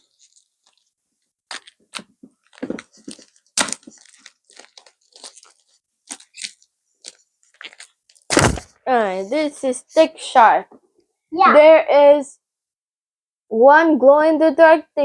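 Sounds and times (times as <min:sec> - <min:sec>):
cardboard and plastic crinkling: 0:00.0 - 0:00.9, 0:01.5 - 0:08.8.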